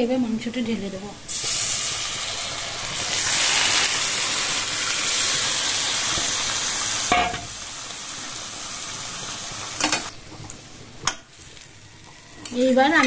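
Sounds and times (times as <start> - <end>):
chicken sizzling in hot oil: 1.3 - 10.2.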